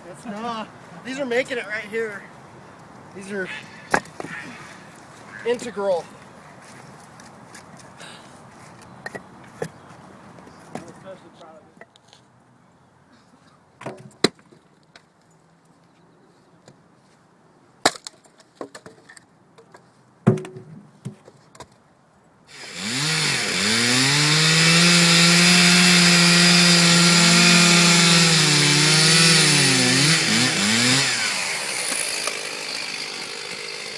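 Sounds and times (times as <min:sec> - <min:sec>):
chainsaw cutting wood: 0:22.5 - 0:33.9.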